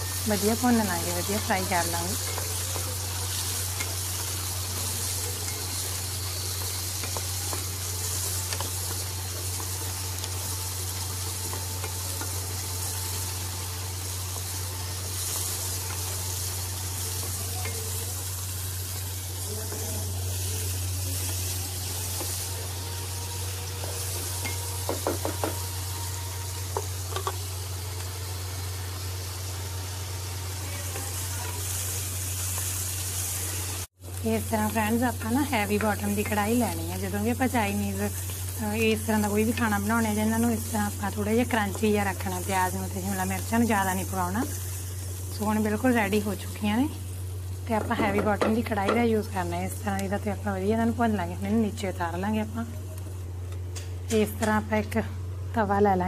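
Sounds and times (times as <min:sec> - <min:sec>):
vegetables sizzling in hot oil: 0:00.0 - 0:55.8
metal spatula knocking on pan: 0:24.5 - 0:25.6.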